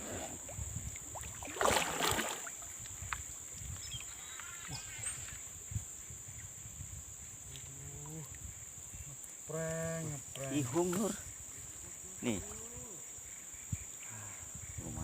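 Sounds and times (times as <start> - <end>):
fish splashing at water surface: 1.2 - 2.7.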